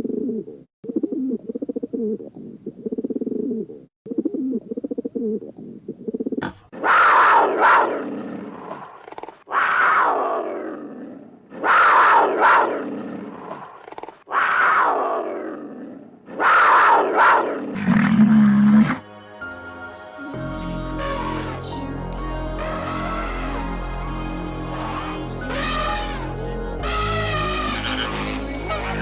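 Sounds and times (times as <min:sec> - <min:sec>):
animal harsh loud calls: 0:06.5 - 0:08.0, 0:09.3 - 0:12.9, 0:13.8 - 0:19.0, 0:25.5 - 0:29.0
low rapidly pulsing animal call: 0:20.9 - 0:29.0.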